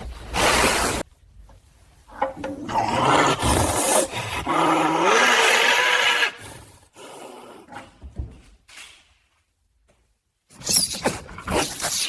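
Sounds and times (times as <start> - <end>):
caracal growling and hissing: 0.0 - 1.1, 2.5 - 7.9.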